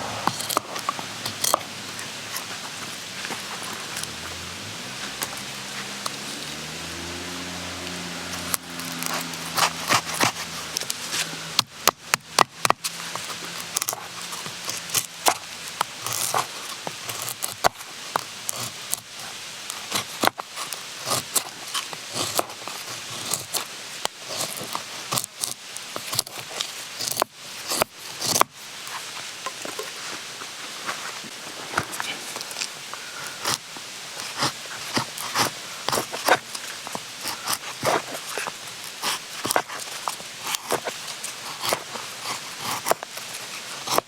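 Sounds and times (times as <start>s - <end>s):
light hiss: 0.0s - 11.6s.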